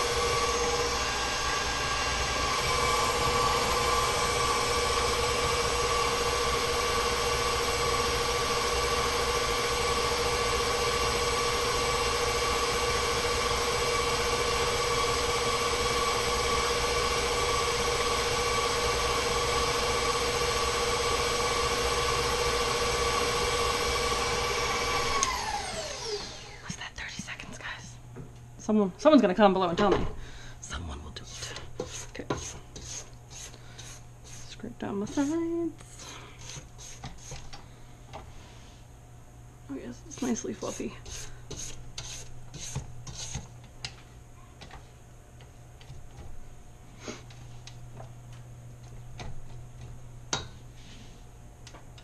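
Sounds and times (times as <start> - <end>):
stand mixer motor whine: 0.0 - 26.5.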